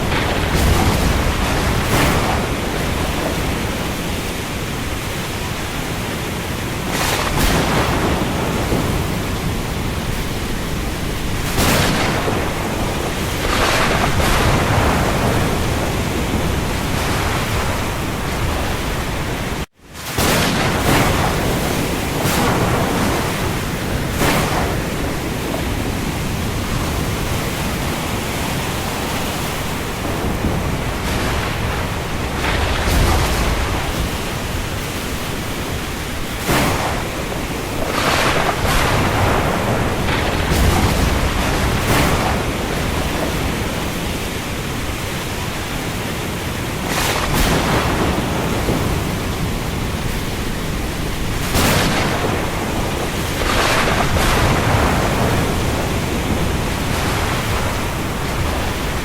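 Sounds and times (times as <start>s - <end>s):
heavy rain on the sea: 0.0s - 59.0s.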